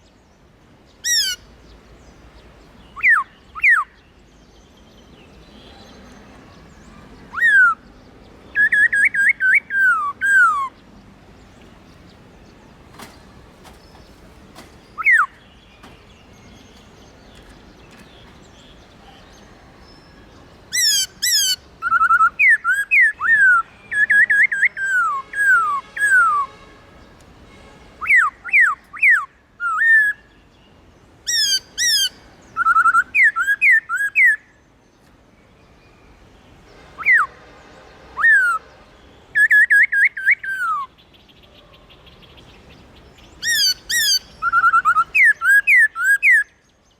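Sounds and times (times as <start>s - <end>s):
bird whistling song: 1.0s - 1.5s, 2.8s - 4.6s, 6.7s - 10.8s, 12.5s - 26.6s, 28.0s - 30.4s, 31.3s - 34.6s, 36.7s - 37.5s, 38.2s - 42.4s, 43.2s - 46.9s.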